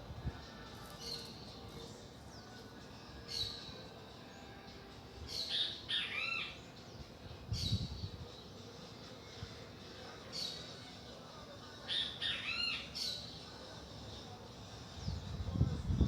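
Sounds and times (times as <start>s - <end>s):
birds calling: 5.3s - 6.8s, 11.9s - 13.4s.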